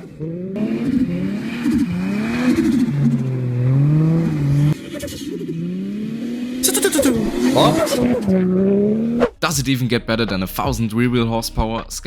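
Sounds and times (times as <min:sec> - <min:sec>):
turbocharged car engines revving: 0:00.0 - 0:09.4.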